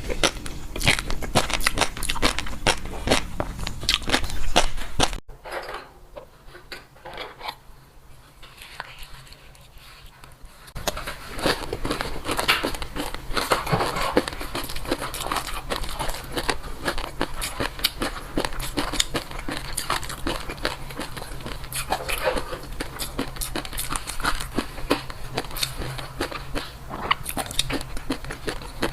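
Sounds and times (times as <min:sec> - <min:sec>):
crunching and chewing food: 0:00.0 - 0:05.2, 0:08.2 - 0:28.9.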